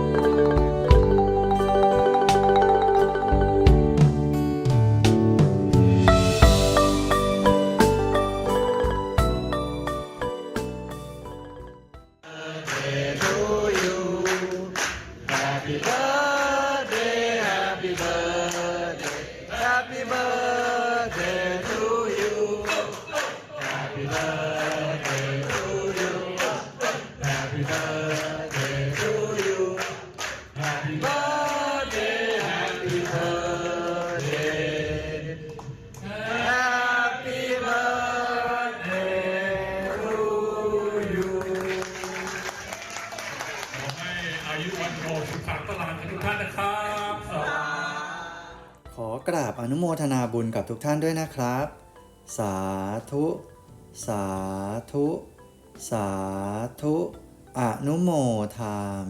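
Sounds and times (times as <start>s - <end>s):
percussion beat: 0.0s - 11.3s
group of voices chanting: 12.3s - 14.7s, 15.3s - 41.5s.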